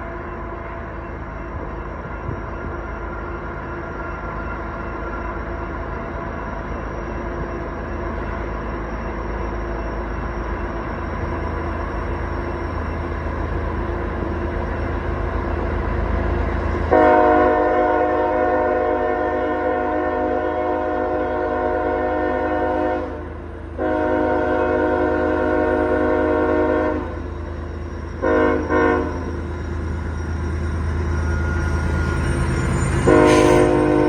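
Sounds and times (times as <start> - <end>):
diesel locomotive engine rumble: 0.0 - 34.0
multi-tone air horn blasts: 16.9 - 23.2, 23.8 - 27.0, 28.2 - 29.1, 33.1 - 34.0.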